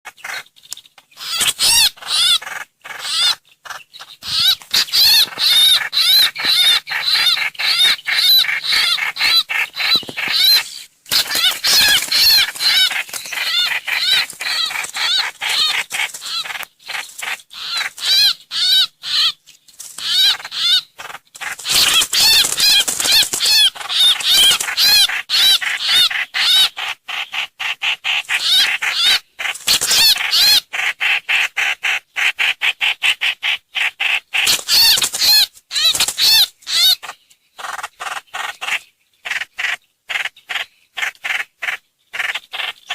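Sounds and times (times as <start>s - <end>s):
bird calling sharp notes: 1.1s - 19.4s, 20.0s - 26.7s, 34.4s - 37.8s.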